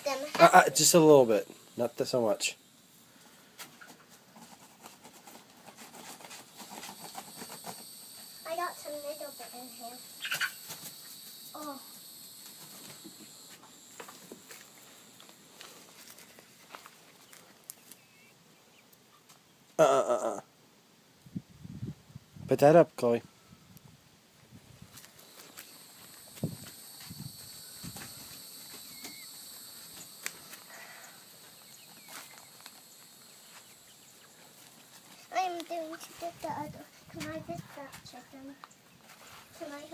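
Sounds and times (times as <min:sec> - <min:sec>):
faint ticks and rustles: 0:03.0 - 0:18.1, 0:23.7 - 0:39.9
chickens calling: 0:10.0 - 0:13.5, 0:25.6 - 0:35.1
chicken squawk: 0:10.1 - 0:10.7.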